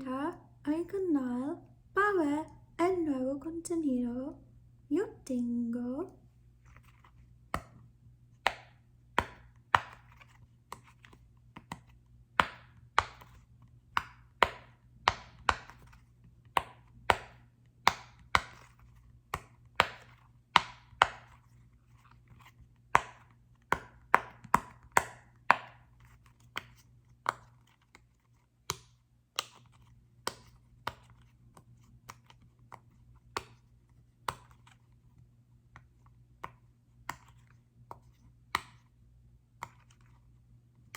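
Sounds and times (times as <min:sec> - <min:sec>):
faint low hum: 0:00.0 - 0:24.1.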